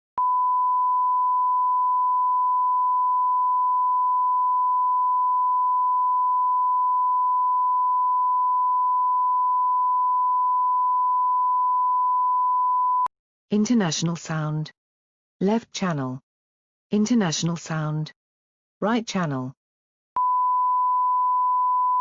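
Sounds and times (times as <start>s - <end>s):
sine test tone: 0.2s - 13.1s, 20.2s - 22.0s.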